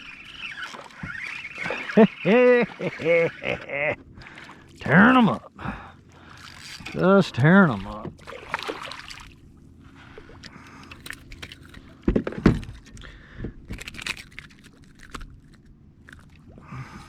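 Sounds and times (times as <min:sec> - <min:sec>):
fish thrashing: 0:00.0 - 0:04.9, 0:05.5 - 0:07.1, 0:07.7 - 0:17.0.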